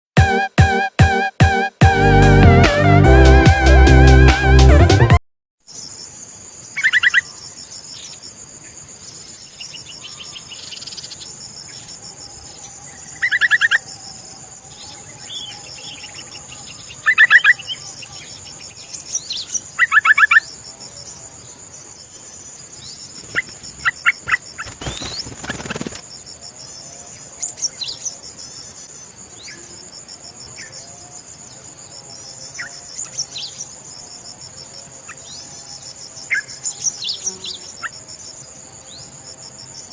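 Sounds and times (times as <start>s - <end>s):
high-pitched insect drone: 10.0s - 26.1s
birds calling: 12.6s - 26.0s.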